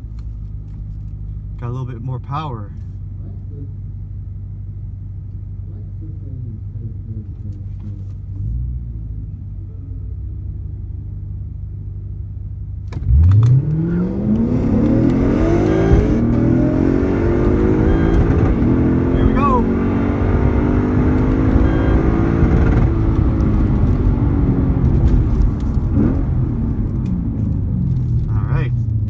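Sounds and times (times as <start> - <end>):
drag cars accelerating: 13.0 - 27.1.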